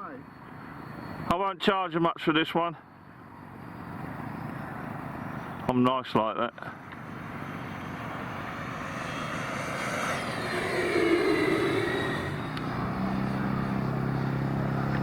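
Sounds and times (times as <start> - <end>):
steady low hum: 7.1 - 13.4
model jet fans whining past: 7.1 - 14.5.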